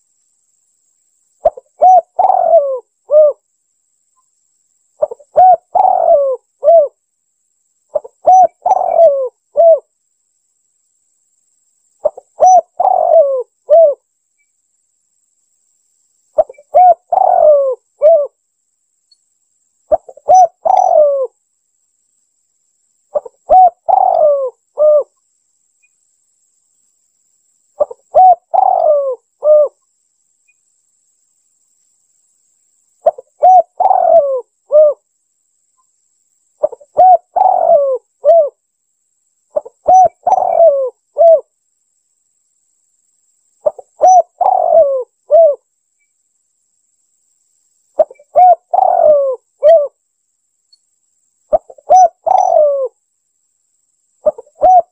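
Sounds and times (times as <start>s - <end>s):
dove cooing: 1.4s - 3.4s, 5.0s - 7.0s, 7.9s - 9.9s, 12.0s - 14.0s, 16.4s - 18.4s, 19.9s - 21.4s, 23.1s - 25.1s, 27.8s - 29.8s, 33.0s - 35.0s, 36.6s - 38.6s, 39.5s - 41.5s, 43.6s - 45.6s, 48.0s - 50.0s, 51.5s - 53.0s, 54.2s - 54.9s.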